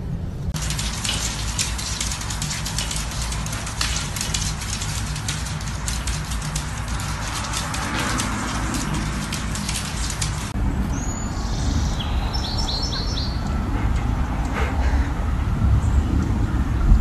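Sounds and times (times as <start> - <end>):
steady low rumble: 0.0 - 17.0
light rapid ticking: 0.6 - 10.6
bird chirping: 10.9 - 13.6.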